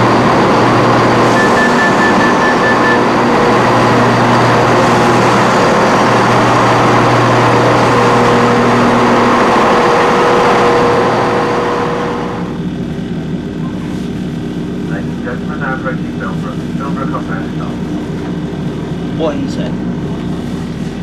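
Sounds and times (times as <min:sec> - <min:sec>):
train running noise: 0:00.0 - 0:12.8
train engine hum: 0:00.0 - 0:21.0.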